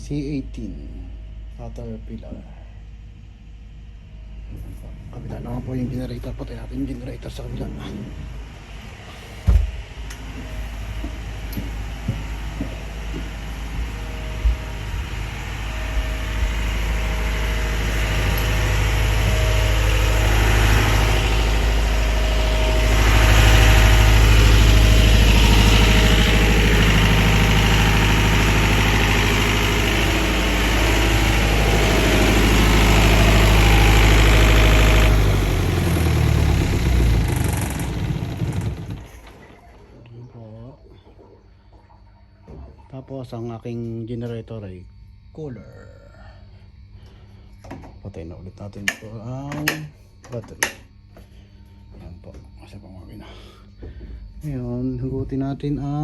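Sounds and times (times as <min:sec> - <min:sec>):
generator engine humming: 0:00.0 - 0:40.4.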